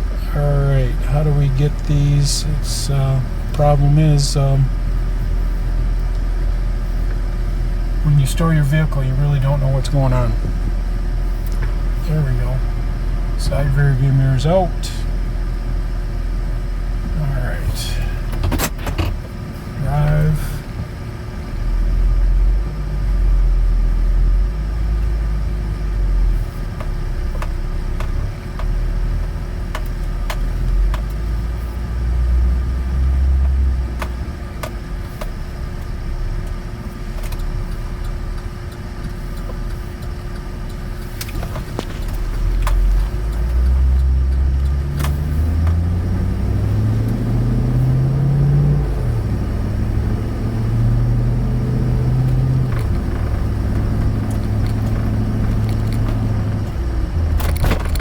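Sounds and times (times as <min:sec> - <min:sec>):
car engine while driving: 0:00.0 - 0:58.0
road rumble: 0:00.0 - 0:58.0
light ticks: 0:33.4 - 0:45.8.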